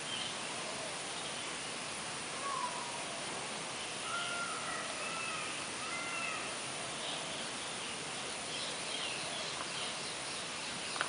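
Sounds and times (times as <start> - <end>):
steady hiss: 0.0 - 11.0
bird mewing calls: 2.3 - 3.3, 3.9 - 7.8.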